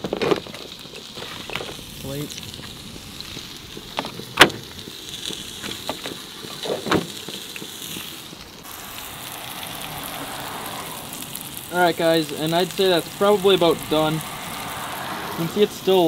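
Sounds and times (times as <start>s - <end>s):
fish sizzling in a frying pan: 0.0s - 16.0s.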